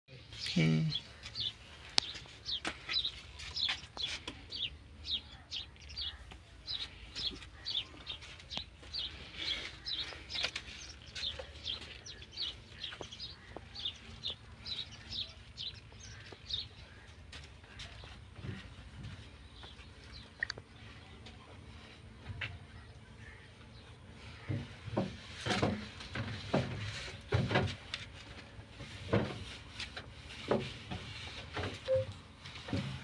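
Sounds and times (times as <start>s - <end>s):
small birds chirping: 0.1s - 26.4s.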